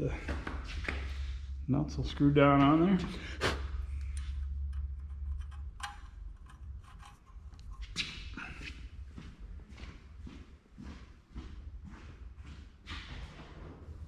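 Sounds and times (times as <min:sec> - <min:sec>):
low hum: 0:00.0 - 0:14.0
nuts clicking on bolt: 0:04.0 - 0:07.8.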